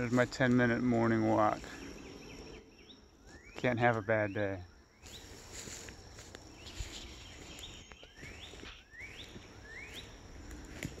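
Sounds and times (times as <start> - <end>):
bird whistling: 7.7 - 10.2.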